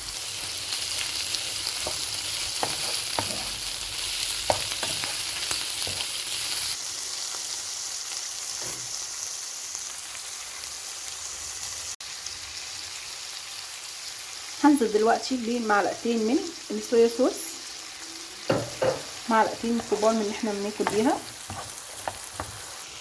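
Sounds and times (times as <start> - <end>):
seafood sizzling in oil: 0.0 - 23.0
utensil knocking against pan: 18.5 - 20.2.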